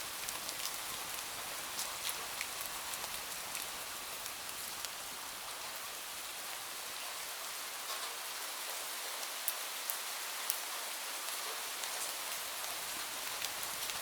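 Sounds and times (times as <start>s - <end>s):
steady rain falling: 0.0s - 14.0s
sharp raindrop ticks: 12.6s - 14.0s.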